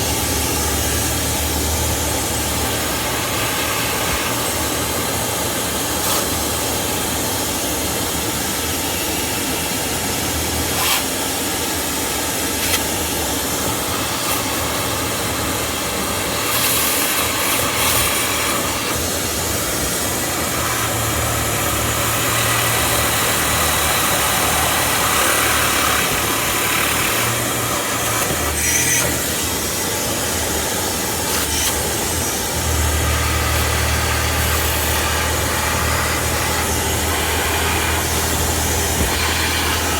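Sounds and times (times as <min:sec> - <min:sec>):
motor humming: 0:12.0 - 0:39.9.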